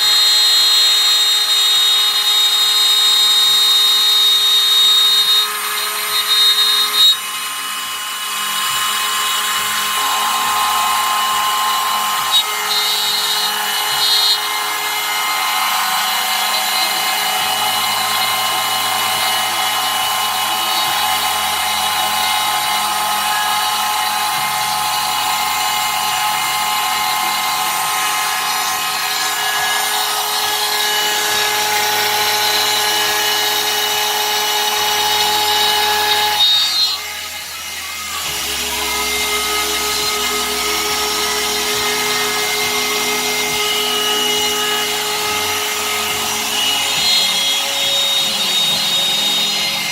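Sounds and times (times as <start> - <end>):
router whining cutting plywood: 0.0 - 49.9
low hum shifting in pitch: 13.4 - 49.9.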